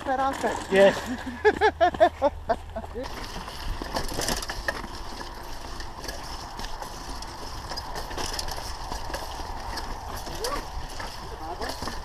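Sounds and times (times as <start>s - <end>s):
bike rattles and clicks: 0.0s - 12.0s
bike tyres rolling on dirt: 0.0s - 12.0s
wind rumbling on microphone: 3.3s - 12.0s.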